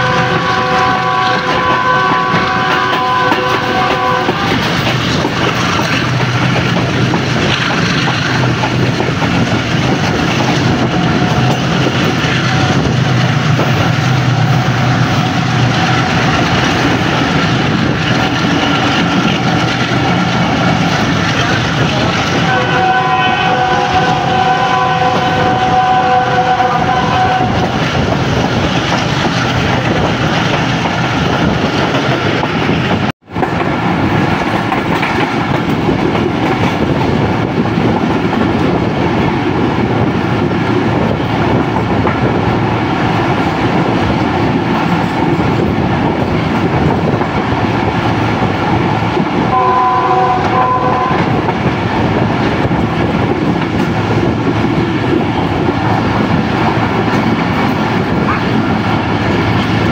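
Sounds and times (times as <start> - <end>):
multi-tone train horn: 0.0 - 4.9, 21.9 - 27.8, 49.4 - 51.5
train wheels rumbling on track: 0.0 - 59.9.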